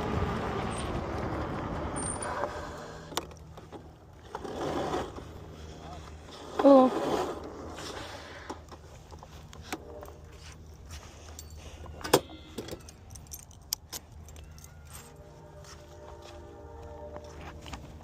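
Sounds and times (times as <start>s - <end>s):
steady low hum: 0.0s - 18.0s
small metal objects jingling: 11.2s - 15.4s.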